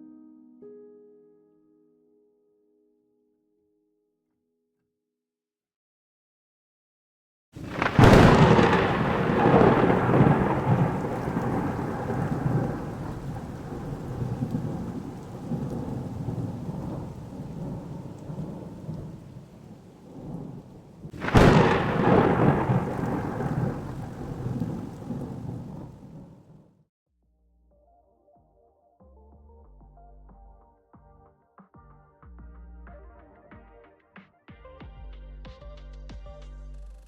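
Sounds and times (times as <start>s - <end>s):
thunderclaps with rumble: 7.6s - 26.6s.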